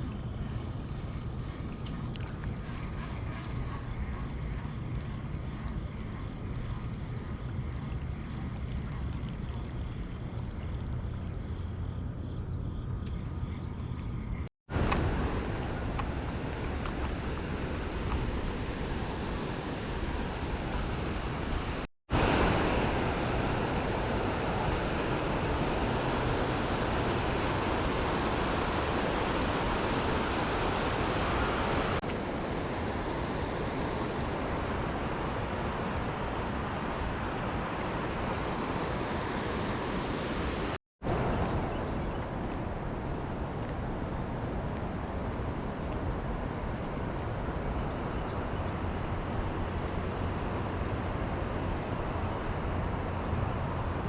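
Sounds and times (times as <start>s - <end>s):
river water flowing: 14.7s - 54.0s.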